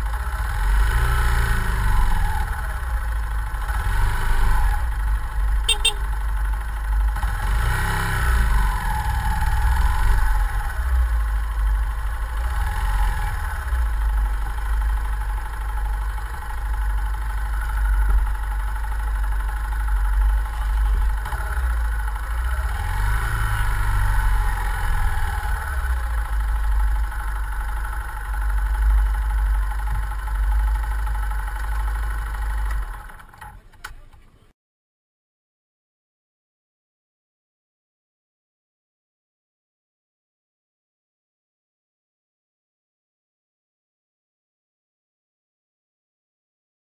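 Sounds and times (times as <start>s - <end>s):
motorcycle engine idling: 0.0s - 34.4s.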